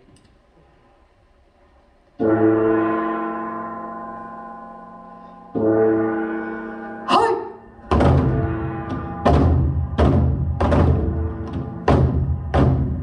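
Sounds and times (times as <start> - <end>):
large gong ringing: 2.2 - 13.0
heavy drum strikes: 7.8 - 13.0.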